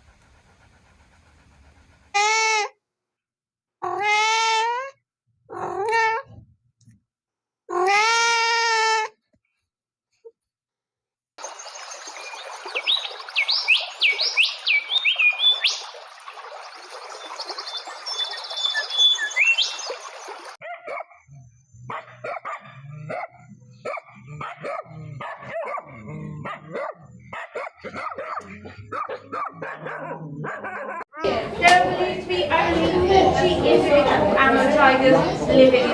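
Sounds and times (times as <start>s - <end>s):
bird chirps: 11.4s - 20.5s
dog barking: 20.6s - 21.2s, 21.9s - 31.0s.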